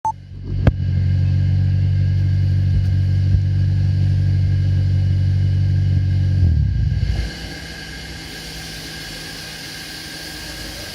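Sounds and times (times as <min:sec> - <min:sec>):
car engine exhaust note: 0:00.1 - 0:10.9.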